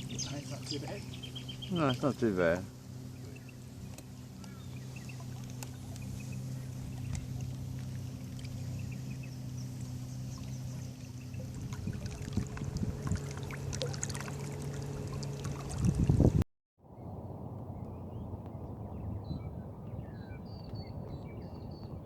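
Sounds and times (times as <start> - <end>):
boat motor humming: 0.0 - 16.4
water splashes: 0.0 - 16.4.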